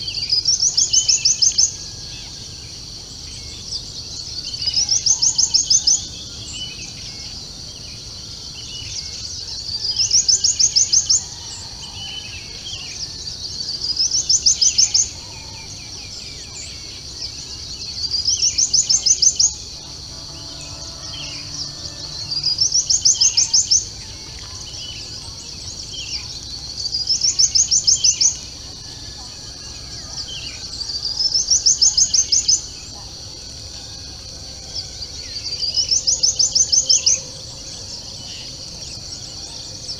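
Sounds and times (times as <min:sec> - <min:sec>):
high rapidly pulsed call: 0:19.8 - 0:23.9.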